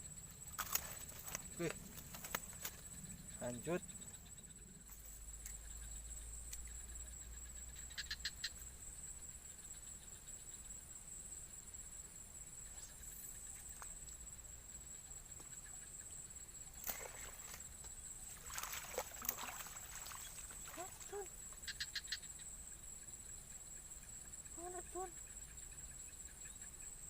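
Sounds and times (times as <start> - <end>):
high-pitched insect drone: 0.0 - 27.0.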